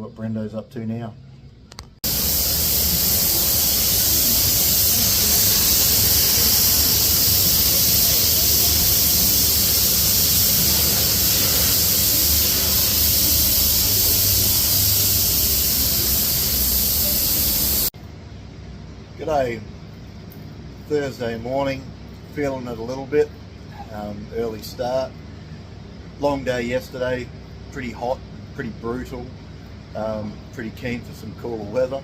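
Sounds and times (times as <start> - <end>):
spray gun hissing: 2.0 - 17.9.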